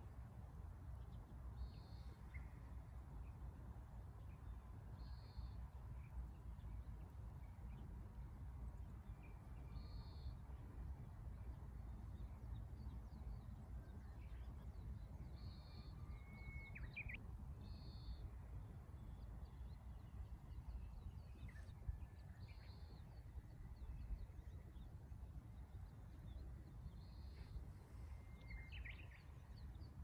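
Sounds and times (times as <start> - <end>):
faint bird chirps: 25.8 - 30.0.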